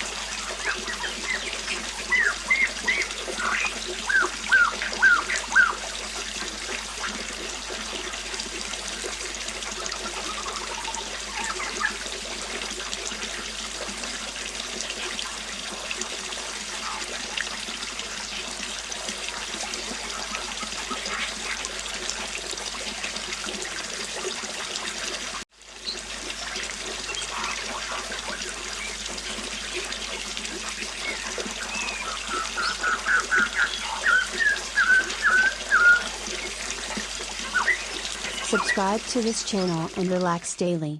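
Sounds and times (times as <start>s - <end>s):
birds chirping: 0.0s - 6.5s, 10.0s - 12.2s, 16.6s - 18.6s, 19.7s - 21.7s, 25.8s - 40.3s
river water flowing: 0.0s - 40.1s.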